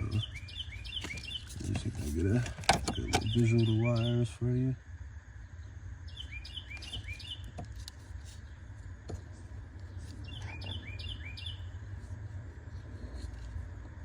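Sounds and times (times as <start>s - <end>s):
bird chirping: 0.0s - 4.3s, 5.5s - 7.6s, 9.9s - 11.9s
steady low rumble: 0.0s - 14.0s.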